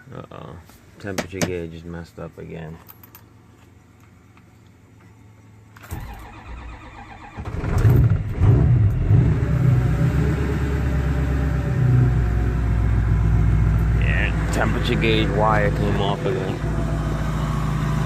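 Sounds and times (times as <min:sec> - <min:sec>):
diesel engine starting and idling: 0:05.8 - 0:18.0.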